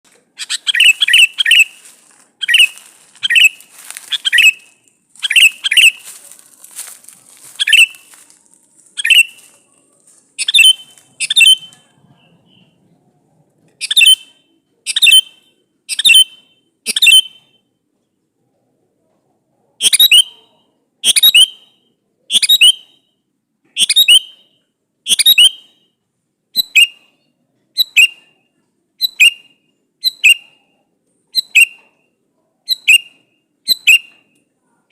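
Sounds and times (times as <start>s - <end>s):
bird whistled calls: 0.4s - 6.1s, 7.6s - 8.1s, 9.0s - 9.5s, 10.4s - 12.8s, 13.8s - 17.6s, 19.8s - 20.4s, 21.0s - 23.1s, 23.8s - 25.9s, 26.6s - 27.0s, 27.8s - 28.3s, 29.0s - 30.6s, 31.3s - 31.8s, 32.7s - 34.2s.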